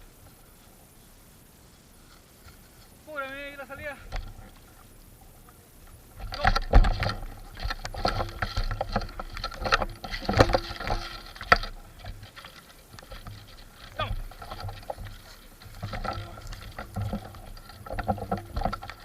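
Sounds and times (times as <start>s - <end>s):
footsteps crunching undergrowth: 5.9s - 19.0s.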